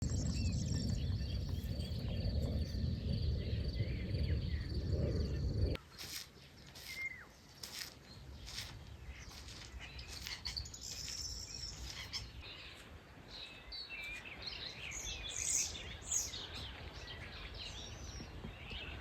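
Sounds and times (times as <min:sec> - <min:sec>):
loud low rumble: 0:00.0 - 0:05.8
birds chirping: 0:00.0 - 0:19.0.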